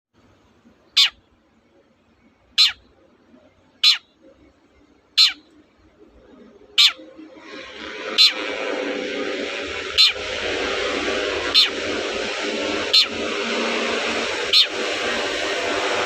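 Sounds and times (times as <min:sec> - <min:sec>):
harsh descending bird calls: 0:02.5 - 0:02.8, 0:03.8 - 0:04.1, 0:05.1 - 0:05.6, 0:06.6 - 0:16.0
steady hiss: 0:07.2 - 0:16.0.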